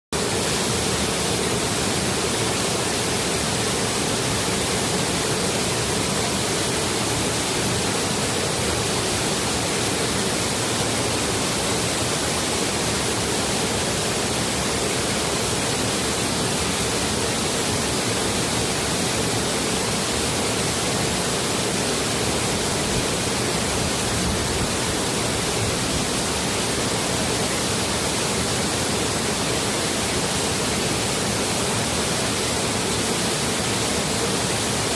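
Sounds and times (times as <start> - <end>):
water rushing over small waterfall: 0.2 - 34.9.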